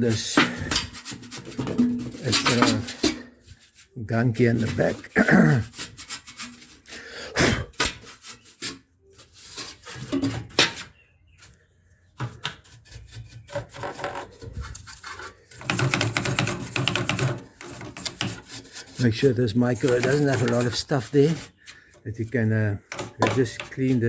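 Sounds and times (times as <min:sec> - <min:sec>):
brush scrubbing inside microwave: 0:15.7 - 0:24.0.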